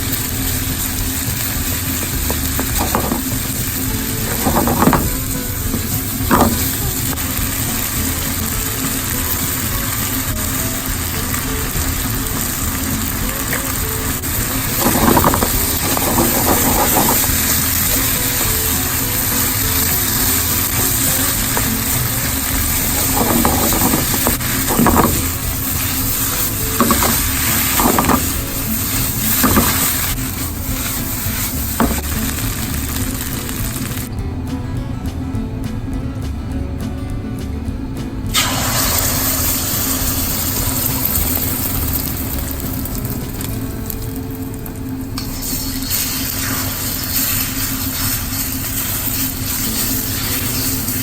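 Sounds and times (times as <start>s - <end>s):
food sizzling in frying pan: 0.0s - 34.1s, 38.3s - 51.0s
utensil scraping pan: 0.0s - 34.1s.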